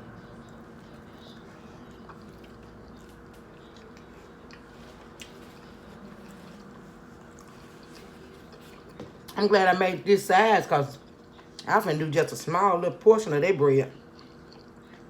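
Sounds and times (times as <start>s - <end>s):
person chewing a sandwich: 0.0s - 9.4s, 10.9s - 11.8s, 13.9s - 15.0s
steady low hum: 0.0s - 15.0s.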